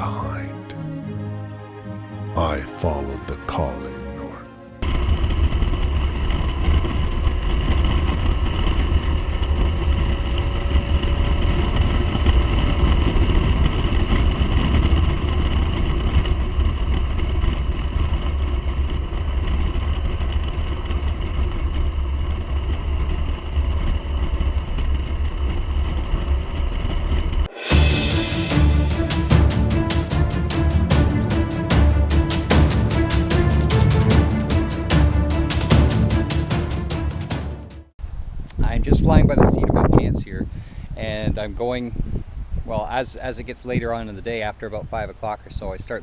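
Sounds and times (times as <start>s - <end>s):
motorcycle running: 4.6s - 37.9s
wind rumble on microphone: 4.8s - 27.5s, 38.0s - 46.0s.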